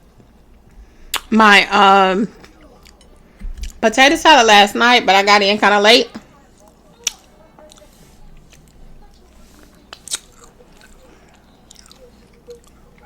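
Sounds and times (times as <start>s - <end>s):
quiet chewing: 2.3s - 3.8s, 6.4s - 13.0s.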